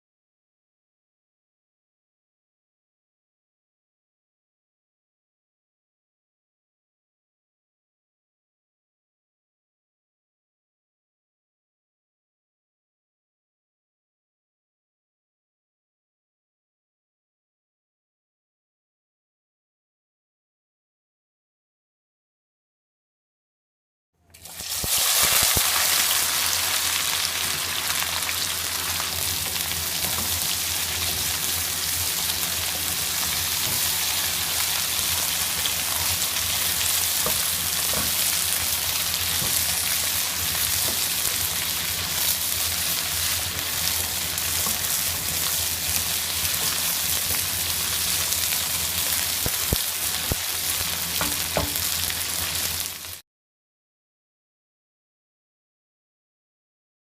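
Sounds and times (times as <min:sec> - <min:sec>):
oil sizzling in a pan: 0:24.4 - 0:53.2.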